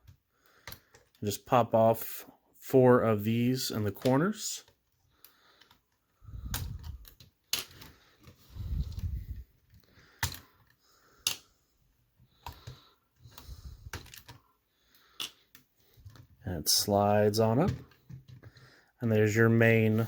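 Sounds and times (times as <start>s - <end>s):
plastic pieces clicking: 4.0s - 11.5s, 12.3s - 16.2s.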